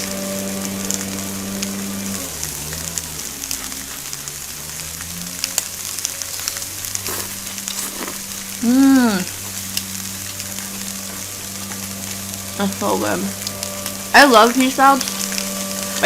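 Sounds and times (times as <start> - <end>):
drone of power equipment: 0.0 - 16.0
food sizzling on a grill: 0.0 - 16.0
person humming: 7.1 - 9.4.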